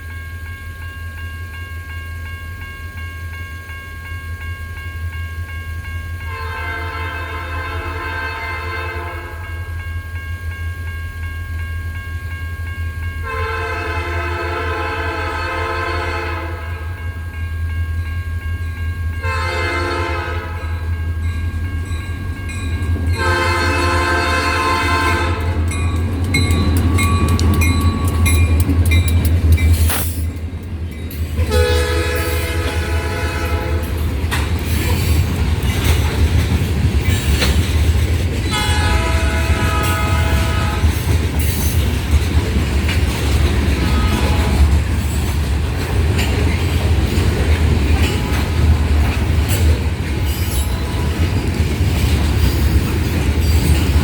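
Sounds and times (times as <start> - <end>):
locomotive air horn blasts: 6.3 - 9.6, 13.2 - 17.0, 19.2 - 20.8, 23.2 - 25.7, 31.4 - 34.0, 38.5 - 41.0, 43.8 - 44.8
train wheels clacking: 19.8 - 54.0.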